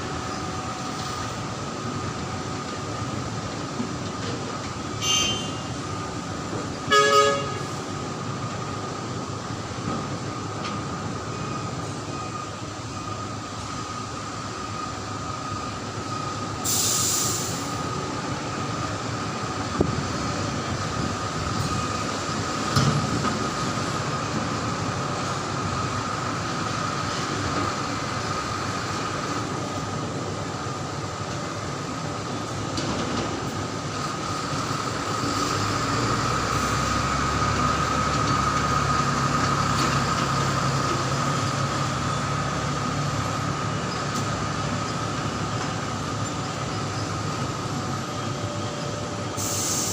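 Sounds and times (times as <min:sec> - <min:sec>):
dump truck running with whine: 0:00.0 - 0:49.9
short hiss: 0:16.6 - 0:17.8, 0:49.4 - 0:49.9.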